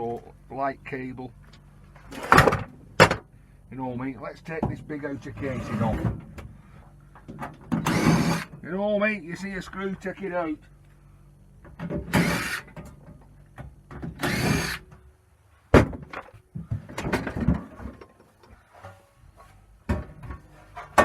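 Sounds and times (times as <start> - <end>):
cordless drill whirring: 7.8 - 8.5, 12.2 - 12.7, 14.2 - 14.8
metal parts knocking and clattering: 15.9 - 19.0.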